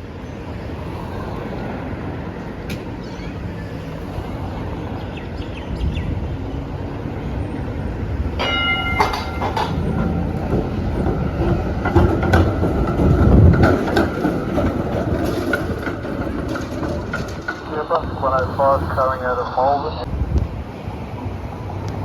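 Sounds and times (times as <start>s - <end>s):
wheels clacking over rail joints: 0.0s - 19.2s
tram rumbling past: 0.0s - 22.0s
steady ringing tone: 8.4s - 10.3s.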